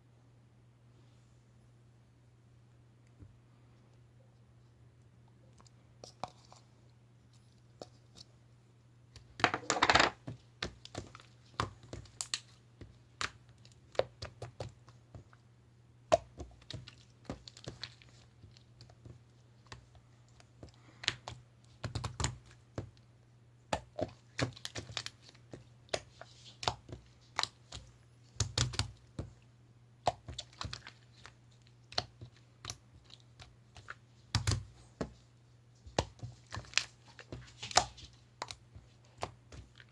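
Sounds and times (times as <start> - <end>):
faint low hum: 0.0 - 39.9.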